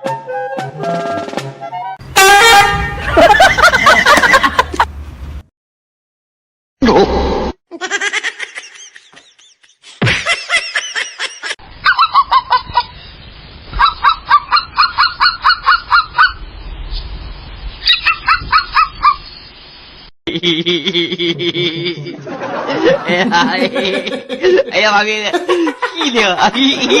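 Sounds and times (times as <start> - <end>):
bird honking: 2.1 - 4.6.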